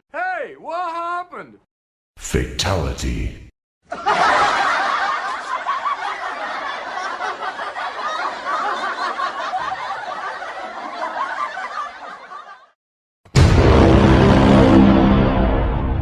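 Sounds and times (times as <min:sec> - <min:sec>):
people laughing and snickering: 0:03.9 - 0:12.7
loud music: 0:13.3 - 0:16.0.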